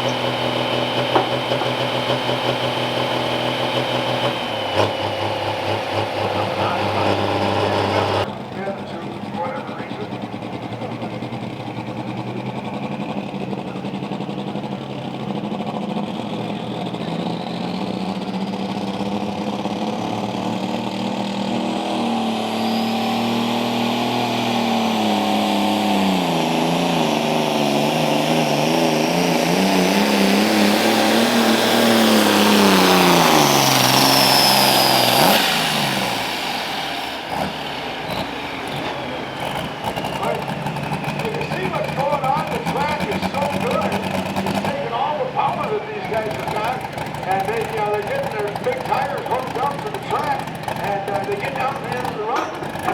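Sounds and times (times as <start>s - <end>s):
high whine: 0.0s - 14.7s
tractor engine under load: 0.0s - 52.9s.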